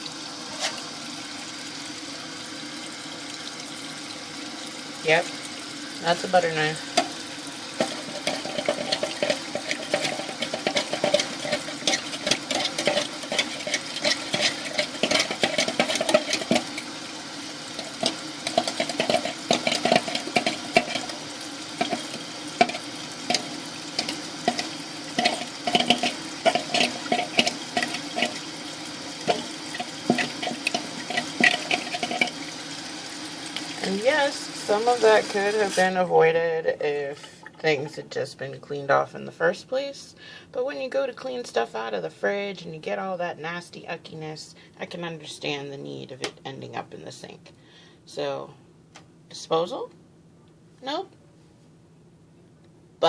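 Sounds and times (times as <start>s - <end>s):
water in sink: 0.0s - 39.6s
knife scraping in sink drain: 0.5s - 0.9s, 6.9s - 17.0s, 17.8s - 32.8s.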